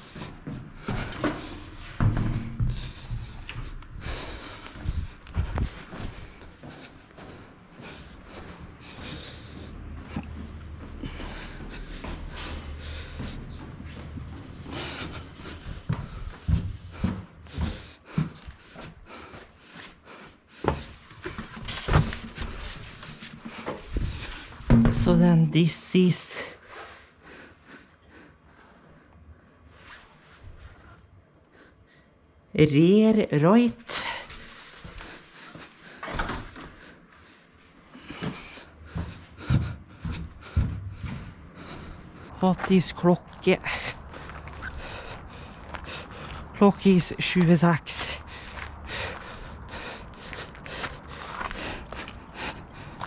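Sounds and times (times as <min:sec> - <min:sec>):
tyres thumping: 0:21.4 - 0:25.4.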